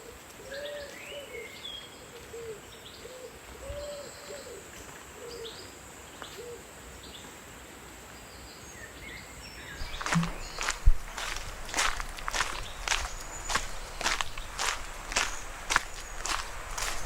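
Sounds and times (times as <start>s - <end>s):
small birds chirping: 8.4s - 17.0s.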